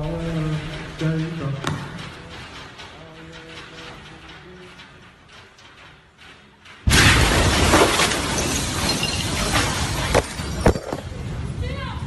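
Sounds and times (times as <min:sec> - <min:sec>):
glass shattering: 0:06.9 - 0:10.9.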